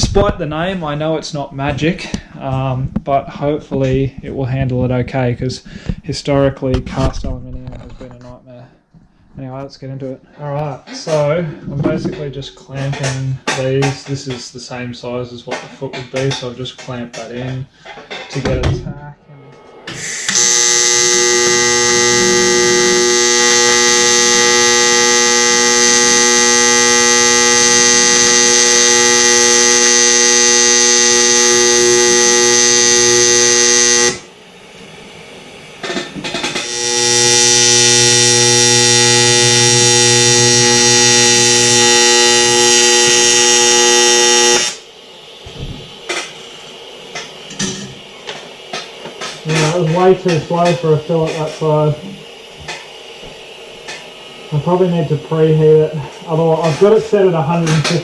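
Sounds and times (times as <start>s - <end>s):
welding arc buzzing: 19.8s - 58.0s.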